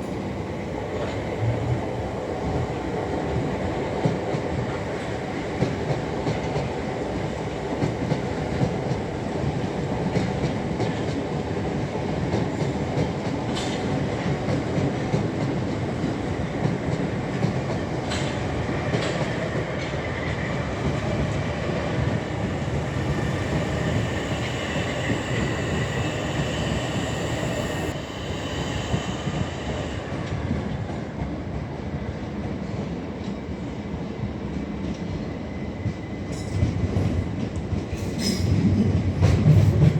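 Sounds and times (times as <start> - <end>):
train rumbling: 0.0 - 39.9
thin whine: 22.3 - 30.5.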